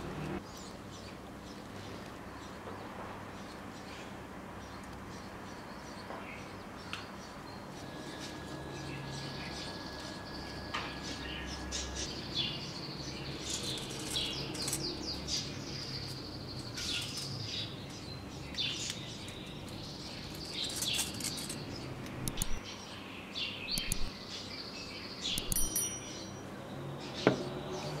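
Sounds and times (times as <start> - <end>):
birds chirping: 0.2 - 28.0
sharp clicks: 22.0 - 22.6, 23.7 - 24.1, 25.3 - 25.8.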